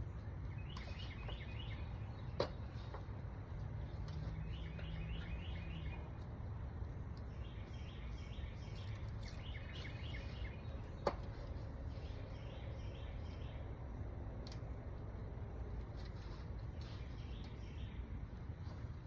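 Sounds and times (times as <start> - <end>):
birds chirping: 0.0 - 14.1, 16.0 - 19.0
low background rumble: 0.0 - 19.0.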